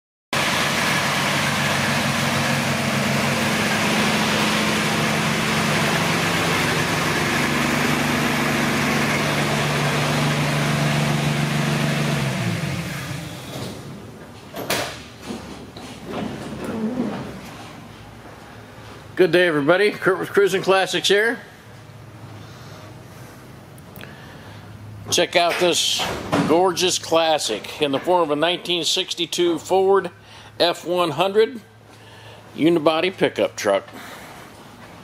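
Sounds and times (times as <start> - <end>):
truck engine idling: 0.4 - 13.5
engine winding down: 0.4 - 13.9.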